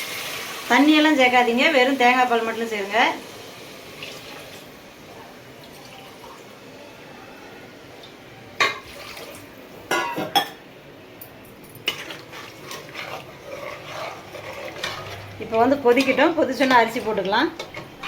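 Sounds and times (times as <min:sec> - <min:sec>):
liquid pouring into a pot: 0:08.8 - 0:09.5
clinks against a pot: 0:09.9 - 0:10.6.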